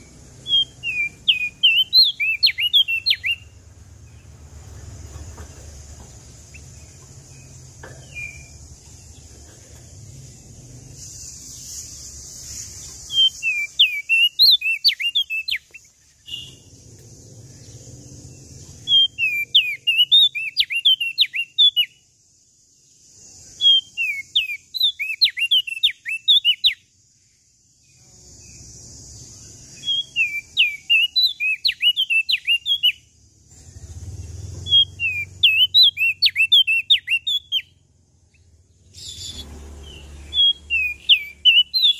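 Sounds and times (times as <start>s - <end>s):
songbird chirping: 0.0s - 41.9s
steady hiss: 4.1s - 13.8s.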